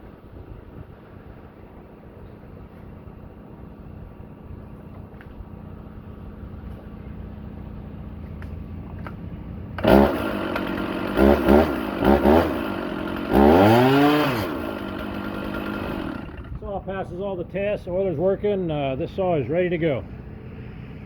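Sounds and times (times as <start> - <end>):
chainsaw starting and revving: 9.8 - 16.6.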